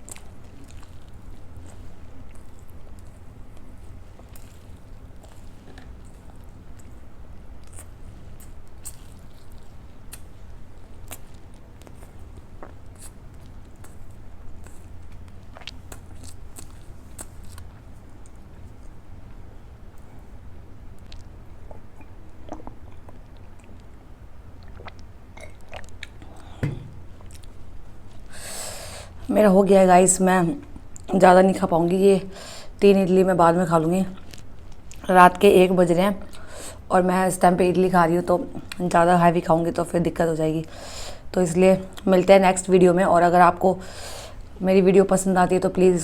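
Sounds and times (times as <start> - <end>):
chewing and mouth sounds: 0.0 - 20.3, 20.9 - 28.3, 34.0 - 35.1
wet chewing mouth smacks: 11.0 - 19.0, 21.0 - 24.0, 24.6 - 27.6
thump: 26.6 - 27.0.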